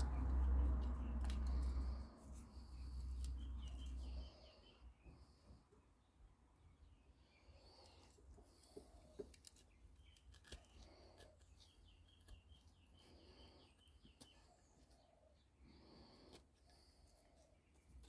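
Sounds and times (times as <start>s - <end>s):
low steady hum: 0.0s - 9.1s
faint bird chirps: 0.1s - 16.2s.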